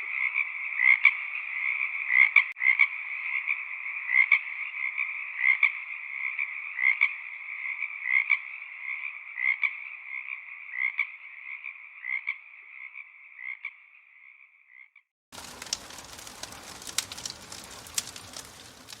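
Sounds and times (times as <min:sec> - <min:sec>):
frogs trilling chorus: 0:00.0 - 0:19.0
steady hiss with crackling clicks: 0:15.4 - 0:19.0.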